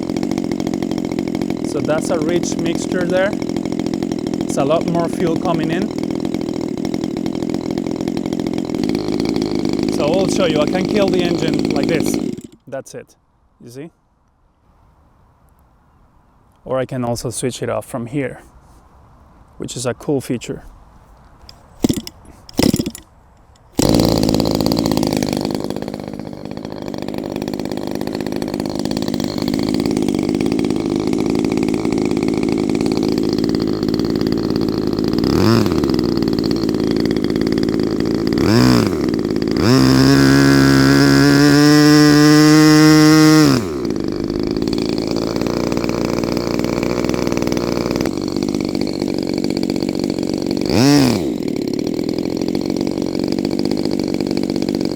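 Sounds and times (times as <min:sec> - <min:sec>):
model airplane engine revving: 0:00.0 - 0:12.6, 0:21.8 - 0:23.0, 0:23.7 - 0:54.9.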